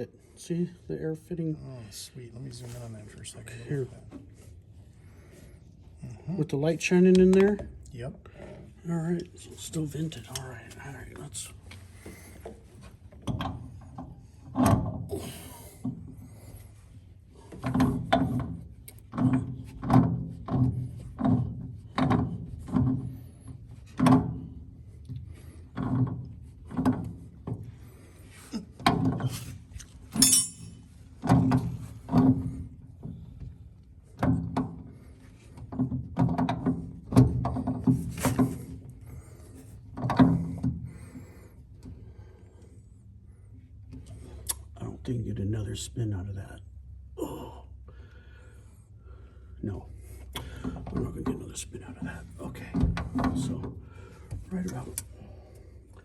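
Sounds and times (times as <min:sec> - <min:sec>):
wrench clanking on metal fitting: 0:30.2 - 0:30.8.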